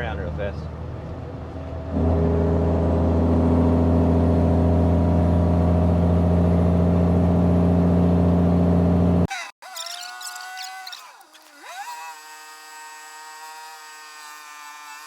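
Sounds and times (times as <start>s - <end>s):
truck diesel engine running: 0.0s - 9.3s.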